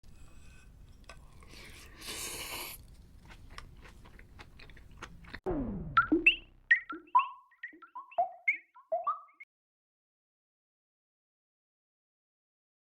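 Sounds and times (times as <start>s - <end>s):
crunchy food bitten: 1.3s - 5.5s
chewing crackling clicks: 2.8s - 5.4s
falling whistle sound effect: 5.5s - 9.4s
playful jingle blips: 5.5s - 9.4s.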